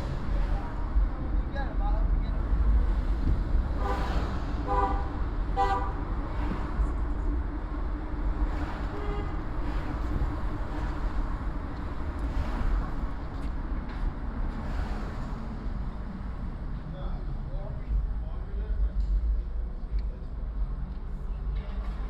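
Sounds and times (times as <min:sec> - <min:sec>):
traffic rumble: 0:00.0 - 0:22.0
car horn toots: 0:03.8 - 0:06.1, 0:08.9 - 0:09.4.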